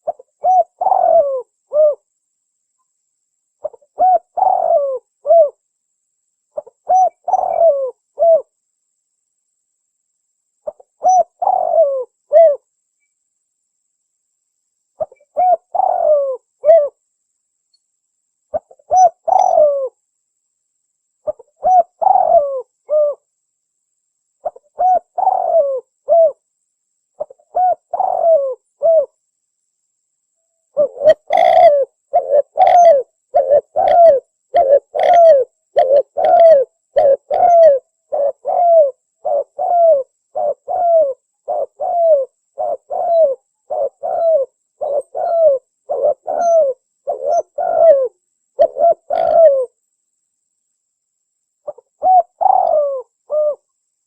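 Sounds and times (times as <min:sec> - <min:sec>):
doves cooing: 0:00.0 - 0:02.0, 0:03.6 - 0:05.6, 0:06.6 - 0:08.5, 0:10.7 - 0:12.6, 0:15.0 - 0:16.9, 0:18.5 - 0:19.9, 0:21.3 - 0:23.2, 0:24.4 - 0:26.4, 0:27.2 - 0:29.1, 0:30.8 - 0:49.7, 0:51.7 - 0:53.6.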